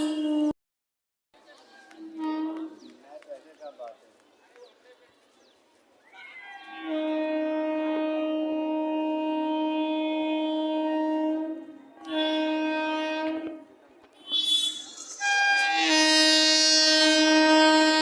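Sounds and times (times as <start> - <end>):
train horn blasts: 2.0 - 2.9, 6.5 - 18.0.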